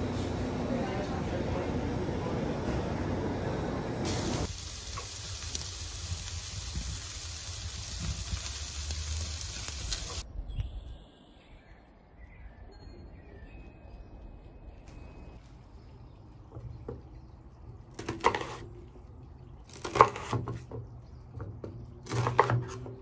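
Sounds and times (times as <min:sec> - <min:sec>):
food sizzling in a hot pan: 0:04.0 - 0:10.2
faint chirps: 0:10.2 - 0:15.4.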